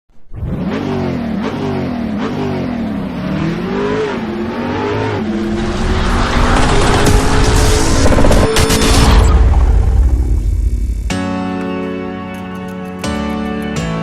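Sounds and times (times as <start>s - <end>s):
car engine revving: 0.2s - 11.1s.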